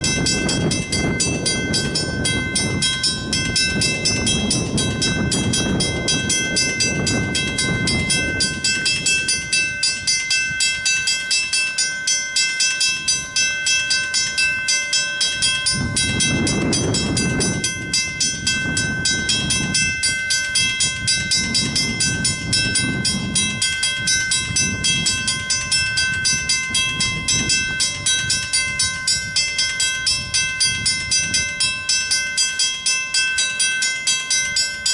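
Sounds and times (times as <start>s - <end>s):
crossing warning bell ringing: 0.0s - 34.9s
low rumbling noise: 15.3s - 32.1s.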